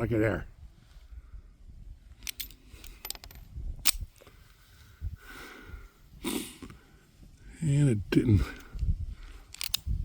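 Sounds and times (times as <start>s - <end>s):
pistol metallic clicks: 2.2s - 4.1s, 9.5s - 9.9s.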